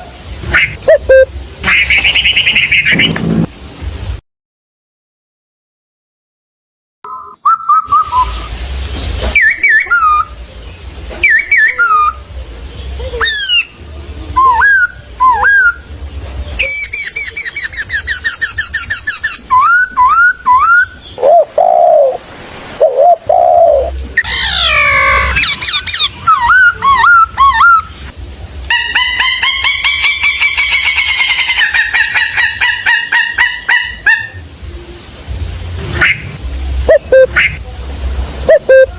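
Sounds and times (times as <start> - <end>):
birds calling and singing: 0.4 - 3.2, 7.4 - 28.0.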